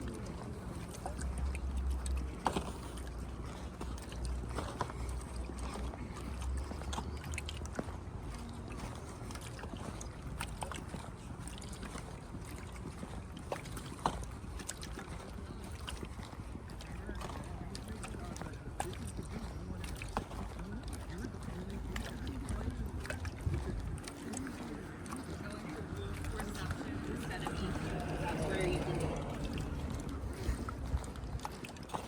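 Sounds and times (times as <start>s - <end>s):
wind rumbling on microphone: 21.8s - 32.0s.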